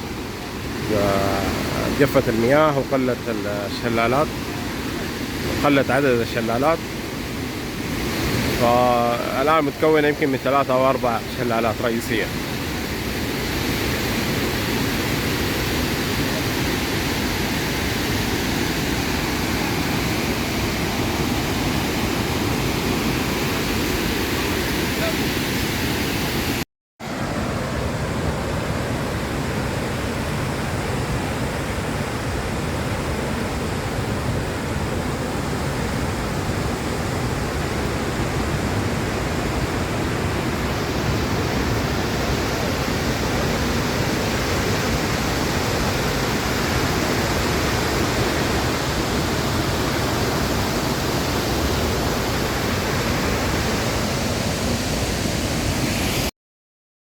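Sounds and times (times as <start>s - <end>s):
waterfall rushing: 0.0s - 56.3s.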